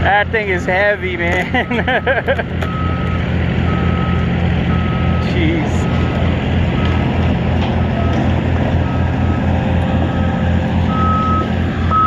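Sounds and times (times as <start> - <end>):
heavy diesel equipment droning: 0.0 - 12.0
backup alarm beeping: 1.6 - 6.1, 8.0 - 12.0.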